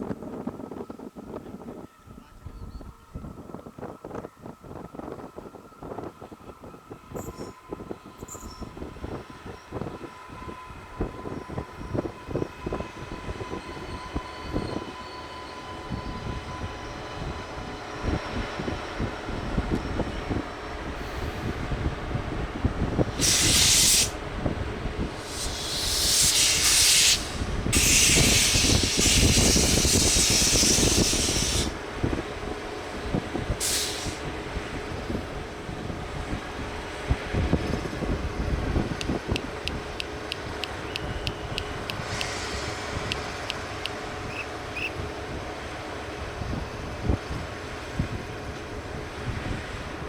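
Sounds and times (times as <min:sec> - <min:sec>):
train rumbling: 0:03.4 - 0:50.0
loud hissing bursts: 0:23.2 - 0:24.2, 0:25.2 - 0:31.8.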